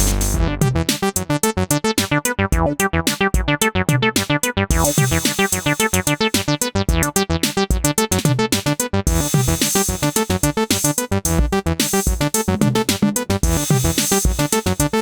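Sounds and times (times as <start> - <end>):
staccato synthesizer bass: 0.0 - 15.0
high hiss like hi-hats: 4.8 - 6.4, 9.1 - 11.1, 11.8 - 12.5, 13.4 - 15.0.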